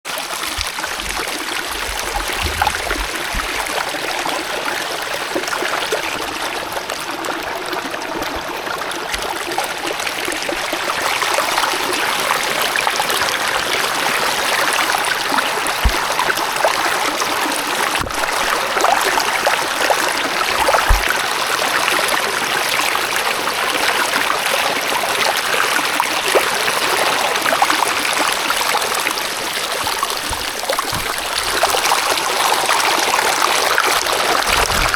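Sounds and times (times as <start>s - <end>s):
water trickling: 0.1s - 34.9s
low bumps: 0.5s - 3.8s.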